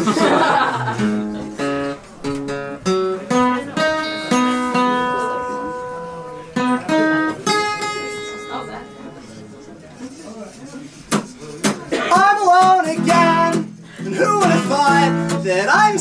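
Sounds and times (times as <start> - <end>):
acoustic guitar strum and picked notes: 0.0 - 9.9, 11.1 - 16.0.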